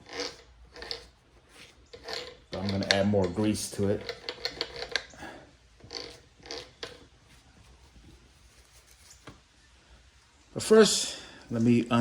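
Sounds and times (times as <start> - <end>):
tools clicking and scraping: 0.0 - 7.2.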